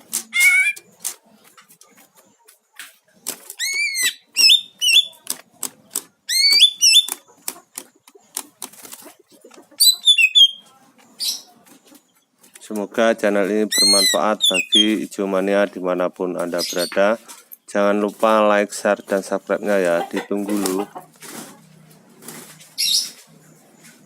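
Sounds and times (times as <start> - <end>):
bird swooping whistled calls: 0.3 - 0.8
sharp clicks and knocks: 5.2 - 8.9.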